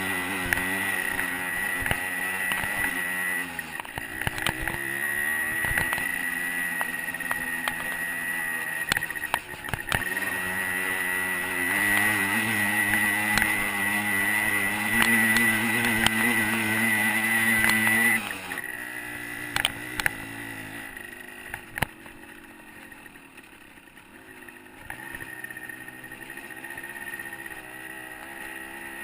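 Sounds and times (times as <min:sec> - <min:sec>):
two-stroke dirt bike engine: 0:00.0 - 0:29.0.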